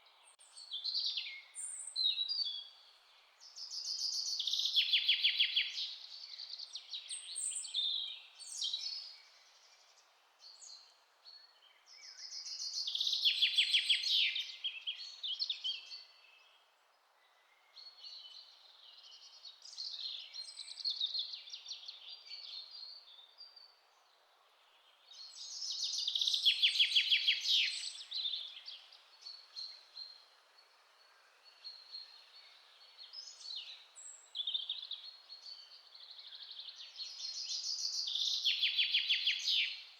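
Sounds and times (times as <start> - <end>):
faint steady hiss: 14.0 - 38.5
songbird trilled song: 24.8 - 39.9.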